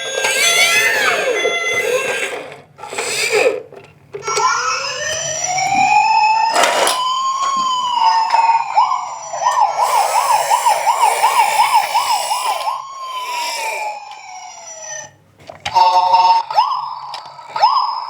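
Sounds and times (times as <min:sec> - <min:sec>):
emergency vehicle siren: 0:04.2 - 0:18.0.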